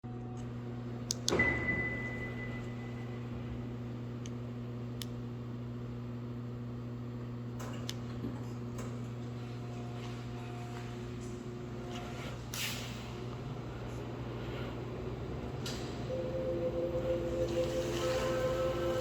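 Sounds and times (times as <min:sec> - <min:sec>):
electrical hum: 0:00.0 - 0:19.0
high ringing tone: 0:01.4 - 0:03.5, 0:16.1 - 0:19.0.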